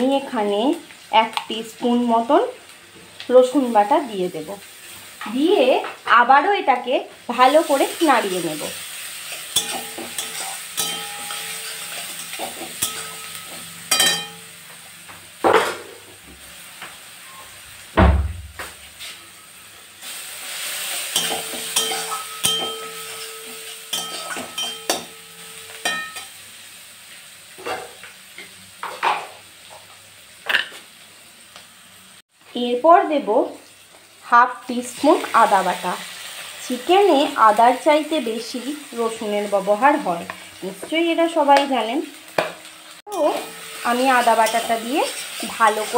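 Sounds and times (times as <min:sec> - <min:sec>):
paste sizzling in hot oil: 0:00.0 - 0:18.0, 0:18.6 - 0:32.3, 0:33.4 - 0:45.9
spatula scraping and knocking pan: 0:09.3 - 0:16.1, 0:21.0 - 0:26.3
heavy dull thump: 0:18.0 - 0:18.5.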